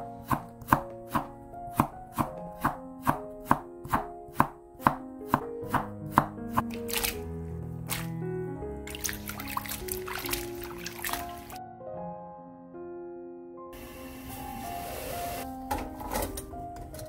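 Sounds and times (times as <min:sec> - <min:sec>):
knife chopping on wooden board: 0:00.2 - 0:06.6.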